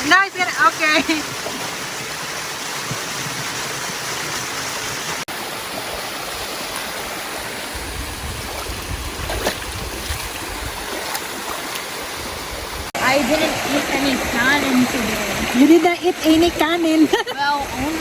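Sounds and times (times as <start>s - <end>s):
waterfall rushing over rocks: 10.9s - 18.0s.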